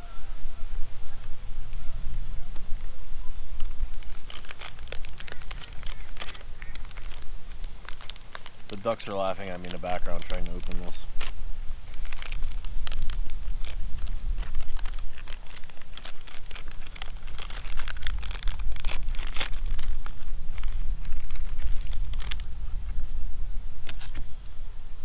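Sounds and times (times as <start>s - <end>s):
wind buffeting microphone: 0.0s - 25.0s
plastic pouch crinkling and tearing: 3.5s - 22.5s, 23.8s - 24.2s.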